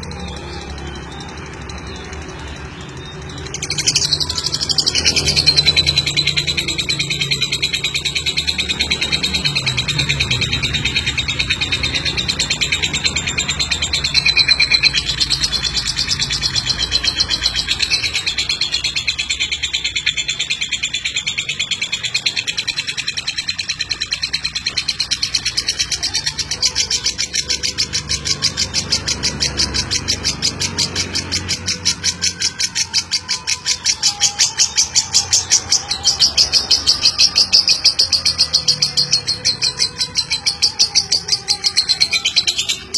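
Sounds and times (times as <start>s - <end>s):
lovebird chattering: 0.0s - 42.9s.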